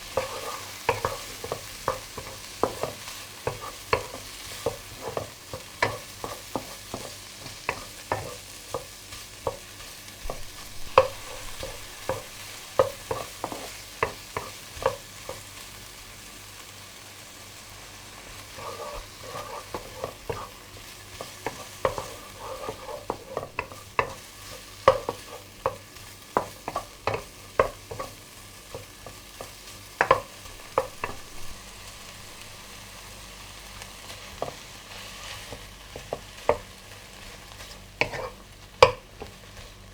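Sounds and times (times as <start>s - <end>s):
food sizzling in a frying pan: 0.0s - 39.9s
utensil tapping against pan: 10.2s - 15.0s, 24.9s - 25.8s, 28.7s - 31.3s, 38.0s - 39.3s.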